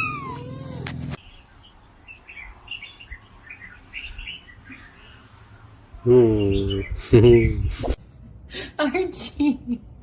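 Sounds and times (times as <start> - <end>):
small birds chirping: 1.2 - 8.0.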